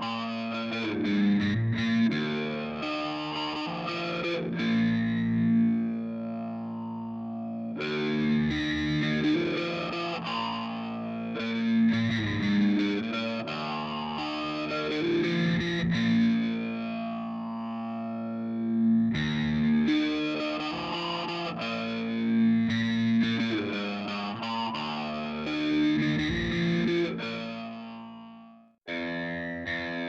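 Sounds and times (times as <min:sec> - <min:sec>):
distorted electric guitar: 0:00.0 - 0:30.0.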